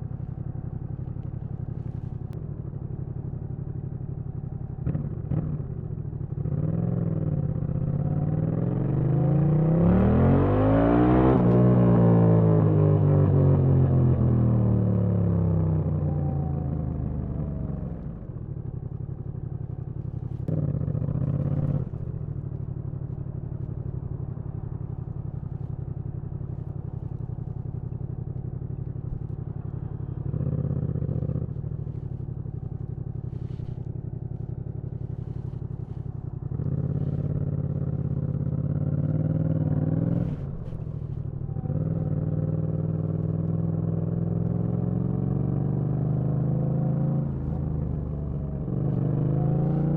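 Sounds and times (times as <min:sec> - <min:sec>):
motorcycle engine revving: 0:19.9 - 0:49.9.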